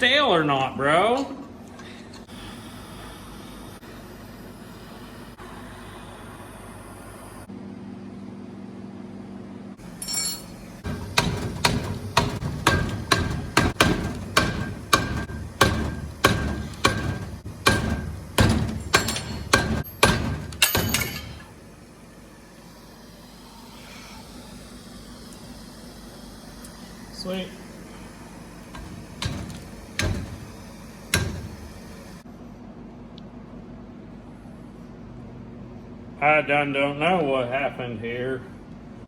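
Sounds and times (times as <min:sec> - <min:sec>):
hammer striking metal: 0:10.0 - 0:21.5, 0:28.7 - 0:31.8.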